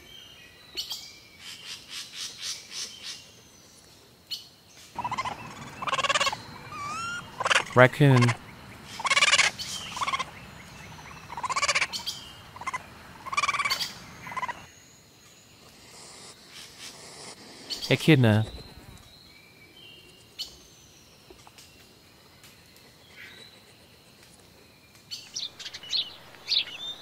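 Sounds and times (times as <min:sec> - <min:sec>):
raccoon chittering: 0:05.0 - 0:14.7, 0:15.6 - 0:19.1.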